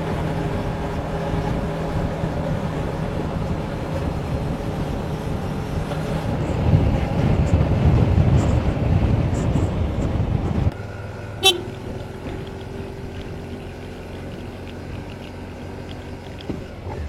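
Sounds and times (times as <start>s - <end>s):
motorcycle engine: 0.0s - 17.0s
road noise: 0.0s - 17.0s
short horn toot: 11.4s - 11.8s.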